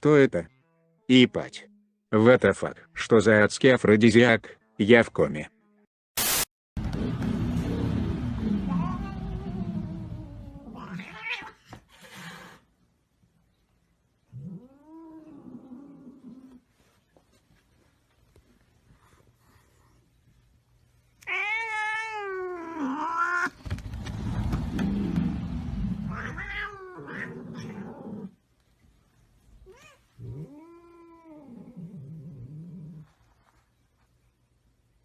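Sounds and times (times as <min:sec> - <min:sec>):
rough low noise: 0:06.2 - 0:10.7, 0:23.6 - 0:26.6
cat yowling: 0:08.6 - 0:11.6, 0:21.3 - 0:23.6, 0:26.1 - 0:28.1.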